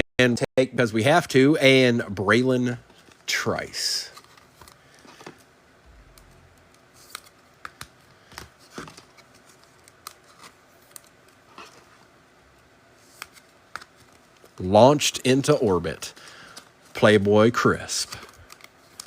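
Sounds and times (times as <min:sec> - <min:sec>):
trading cards being handled: 0:02.8 - 0:14.7, 0:15.4 - 0:19.0.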